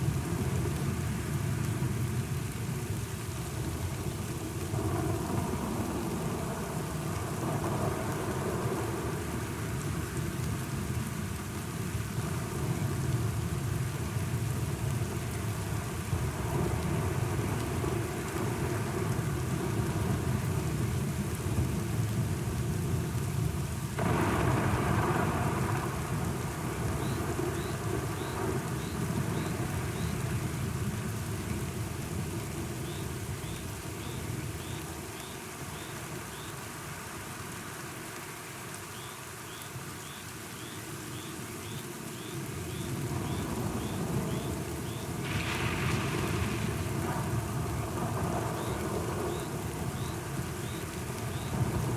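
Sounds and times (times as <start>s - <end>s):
steady rain: 0.0s - 51.9s
low rolling thunder: 24.0s - 31.1s, 43.0s - 50.6s, 51.2s - 51.9s
loud thunder clap: 45.2s - 49.4s.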